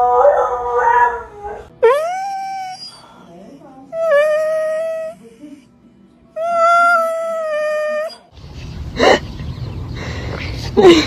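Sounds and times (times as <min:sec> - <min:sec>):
dog howling: 0:00.0 - 0:03.0.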